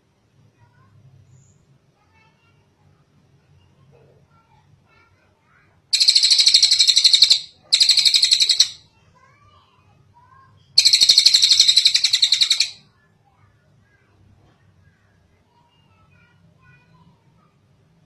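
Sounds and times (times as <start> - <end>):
bird calling rapid high notes: 6.0 - 8.8, 10.8 - 12.8.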